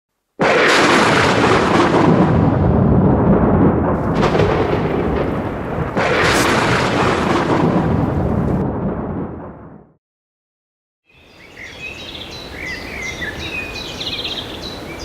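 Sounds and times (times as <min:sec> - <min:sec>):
thunder rolling: 0:00.4 - 0:10.0.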